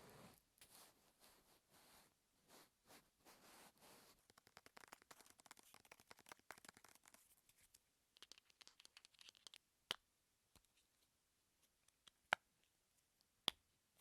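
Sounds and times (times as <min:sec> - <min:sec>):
soft crackly clicks and scratches: 0:03.7 - 0:13.3.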